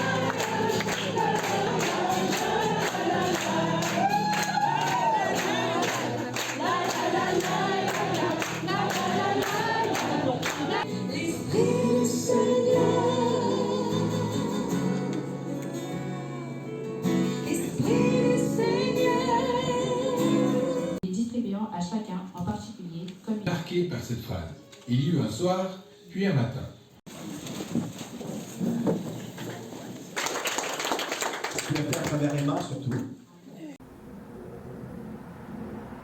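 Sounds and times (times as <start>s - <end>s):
choir singing: 0.0s - 16.5s, 17.4s - 21.0s.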